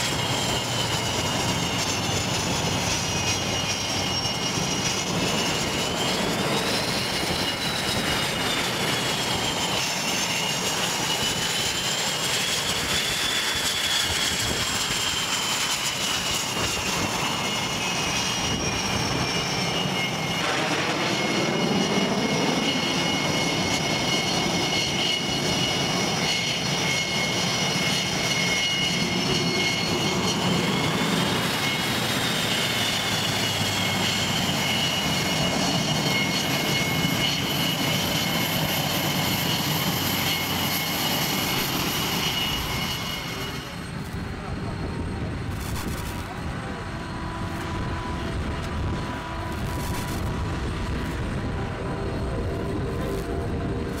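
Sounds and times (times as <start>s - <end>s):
high turbine whine: 0.0s - 54.0s
jet engines roaring: 0.0s - 54.0s.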